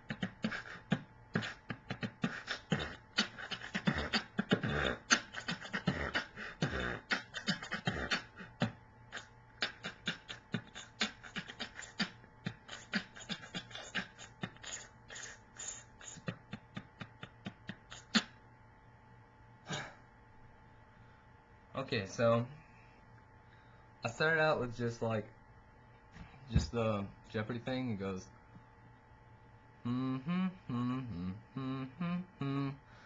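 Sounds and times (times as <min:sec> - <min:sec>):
person beatboxing: 0:00.0 - 0:18.4.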